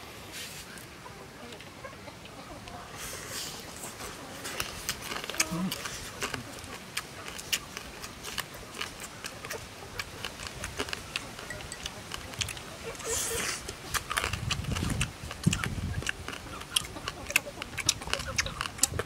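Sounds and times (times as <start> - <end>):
chewing and biting: 3.1 - 19.0
meat crackling as torn: 4.4 - 19.0.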